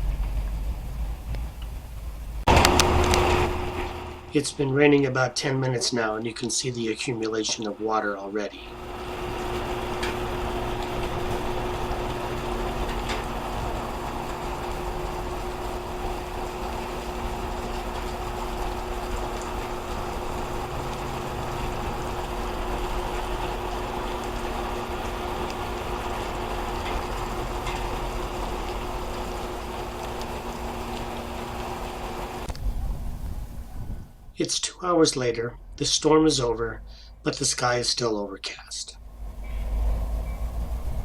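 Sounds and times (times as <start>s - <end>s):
low two-note hum: 0.0s - 4.9s, 8.6s - 34.1s
heavy rain splashing: 0.0s - 8.0s, 8.6s - 33.7s, 39.0s - 41.0s.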